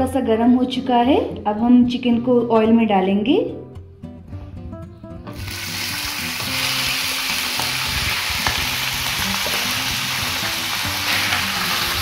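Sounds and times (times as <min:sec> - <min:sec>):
chicken sizzling in hot oil: 0:05.4 - 0:12.0.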